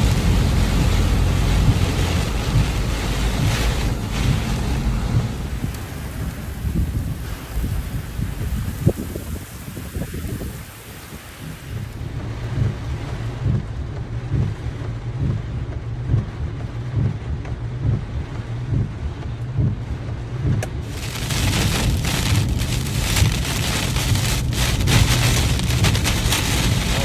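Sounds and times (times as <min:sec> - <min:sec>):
wind buffeting microphone: 0:00.0 - 0:19.8, 0:20.4 - 0:27.0
rain falling: 0:00.0 - 0:27.0.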